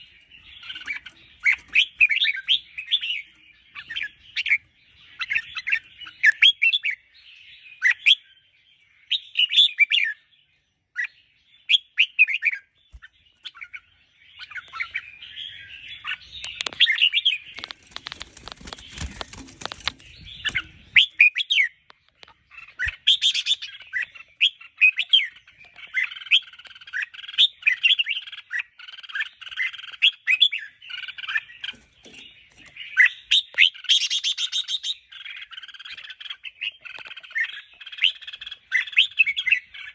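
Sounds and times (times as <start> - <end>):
bird warbling song: 0.0 - 39.9
rustling noise: 17.5 - 21.0.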